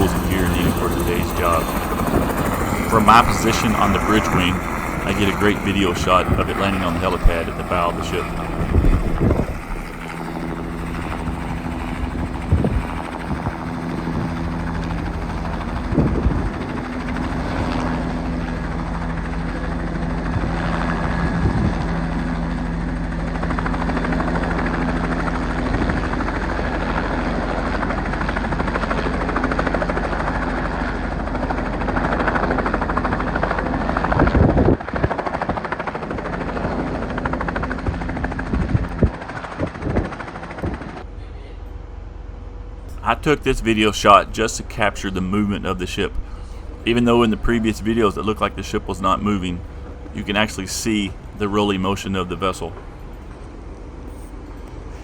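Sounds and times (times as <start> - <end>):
wind gusts on microphone: 0.0 - 18.7, 20.2 - 22.2, 33.9 - 35.7, 36.6 - 41.0
helicopter rotor and turbine: 0.0 - 55.0.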